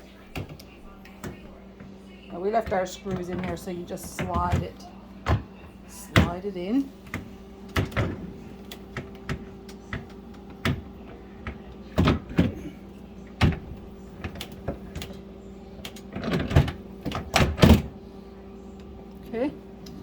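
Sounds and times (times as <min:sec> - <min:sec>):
fridge drawer clicks and knocks: 0:13.4 - 0:15.2.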